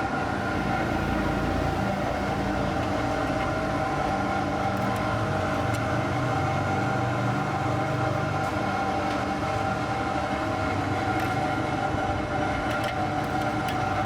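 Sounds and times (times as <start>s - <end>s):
machine humming: 0.0s - 14.0s.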